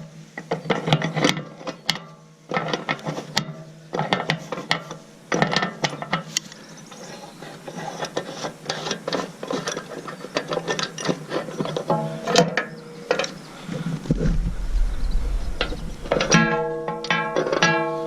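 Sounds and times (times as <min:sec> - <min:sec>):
low hum: 0:13.4 - 0:17.7.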